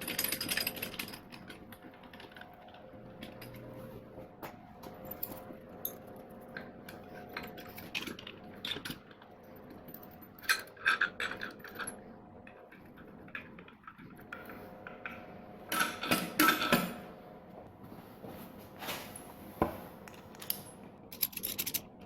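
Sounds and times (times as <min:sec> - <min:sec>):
metal tools clinking: 0:20.1 - 0:21.9.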